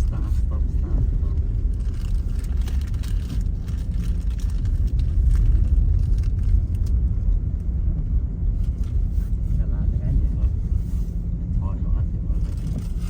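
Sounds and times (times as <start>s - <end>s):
car cabin road and engine rumble: 0.0s - 13.0s
faint clicks and crackles: 1.3s - 7.7s.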